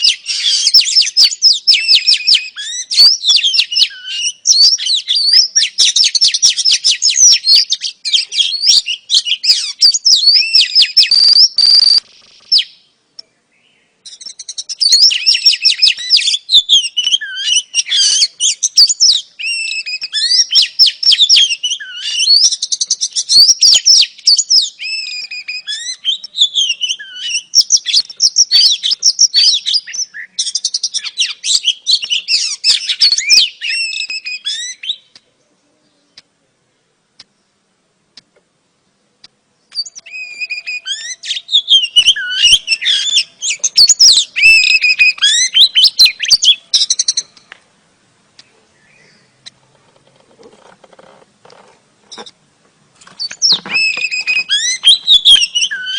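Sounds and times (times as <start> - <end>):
bird chirps and whistles: 0.0 - 12.9, 14.0 - 35.2, 39.7 - 47.4, 53.2 - 55.9.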